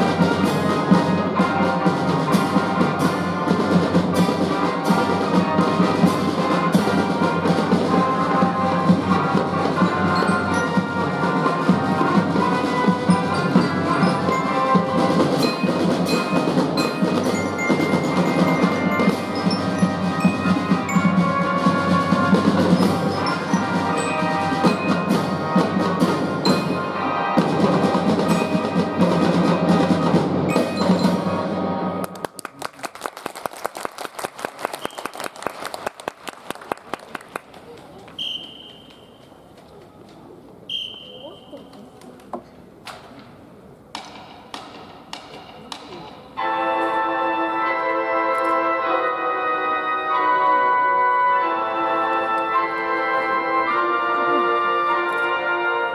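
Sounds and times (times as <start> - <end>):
drum and fife band playing march: 0.0 - 32.3, 43.9 - 55.9
glockenspiel melody: 8.4 - 29.7, 30.5 - 31.4
applause: 32.0 - 38.2.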